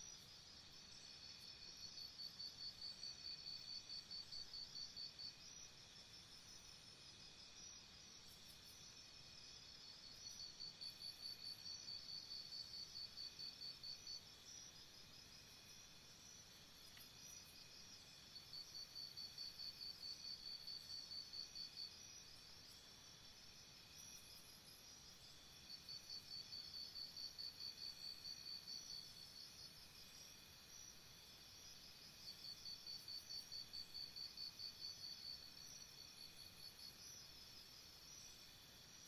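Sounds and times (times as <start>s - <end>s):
faint chorus of chirping insects: 0.0s - 39.0s
nearby insect chirping: 7.5s - 39.0s.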